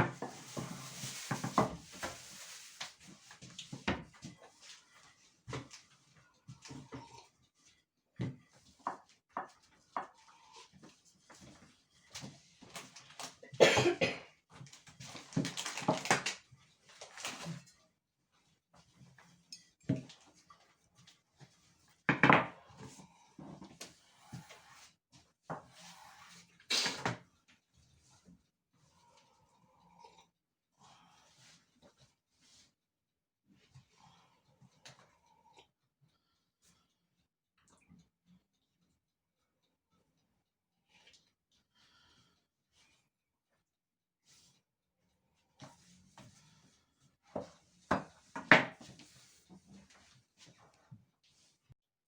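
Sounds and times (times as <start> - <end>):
objects knocking and clattering: 22.1 - 22.6.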